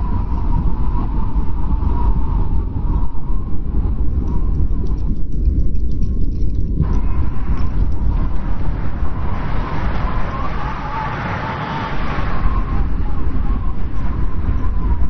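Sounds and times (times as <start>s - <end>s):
blizzard wind rumbling: 0.0s - 15.0s
wavering high whistle: 6.9s - 15.0s.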